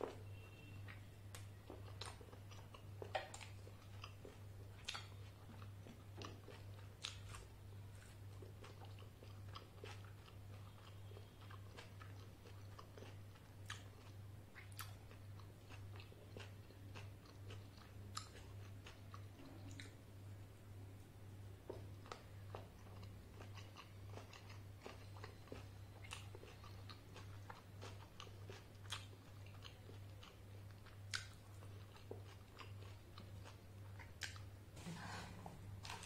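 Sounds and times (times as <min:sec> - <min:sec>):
wet chewing mouth clicks: 0:04.8 - 0:05.2.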